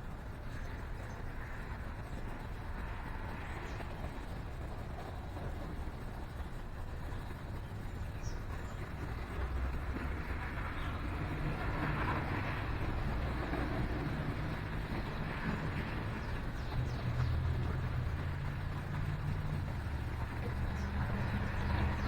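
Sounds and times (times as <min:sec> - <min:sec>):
road traffic rumble: 0:00.0 - 0:22.0
vehicle passing: 0:09.4 - 0:22.0.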